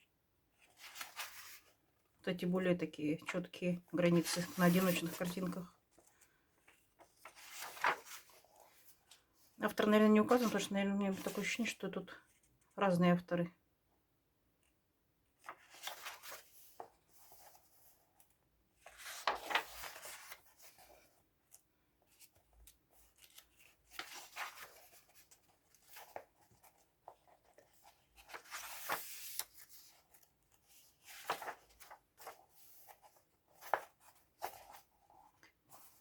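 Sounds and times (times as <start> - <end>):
paper pages turning: 0.6 - 1.8, 4.2 - 9.2, 15.4 - 36.0.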